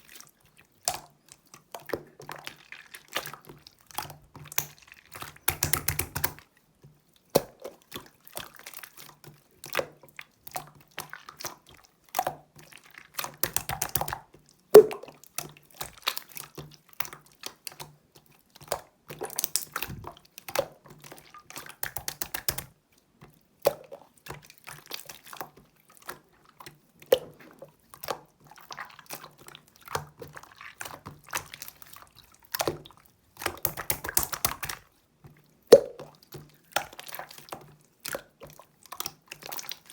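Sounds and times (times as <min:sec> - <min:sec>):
air bubbles popping: 0:14.8 - 0:15.1, 0:19.8 - 0:20.1, 0:35.7 - 0:36.2
slime squishing by hand: 0:14.8 - 0:15.2, 0:19.5 - 0:20.2, 0:29.9 - 0:34.8, 0:35.7 - 0:37.4.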